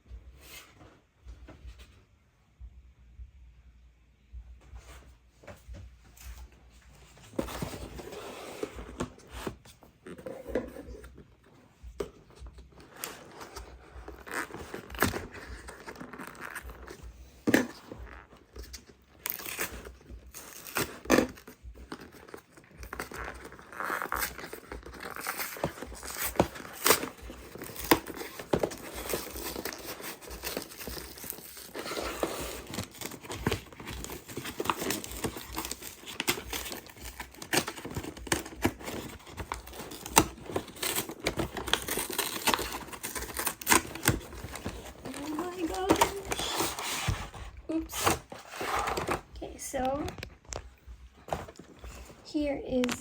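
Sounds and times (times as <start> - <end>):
packaging crinkling and tearing: 12.8 - 17.0, 17.6 - 50.7.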